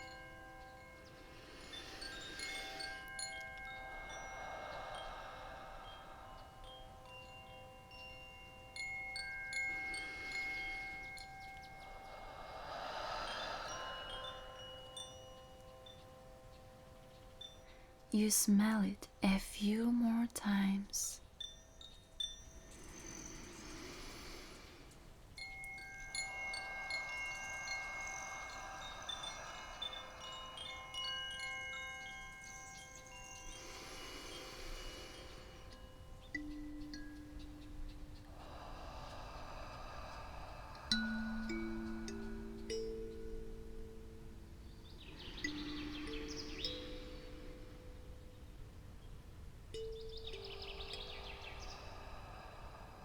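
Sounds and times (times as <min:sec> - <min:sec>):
meditation chimes ringing: 0:00.0 - 0:53.0.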